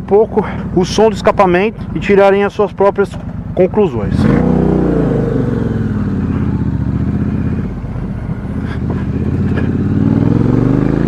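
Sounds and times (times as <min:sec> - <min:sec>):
motorcycle engine revving: 0:03.1 - 0:11.0.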